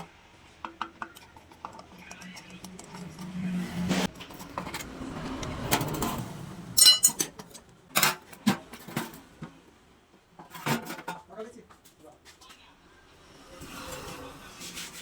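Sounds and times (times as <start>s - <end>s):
sharp metallic clinks and knocks: 6.8s - 7.6s
metal tools shuffling on workbench: 6.8s - 9.3s.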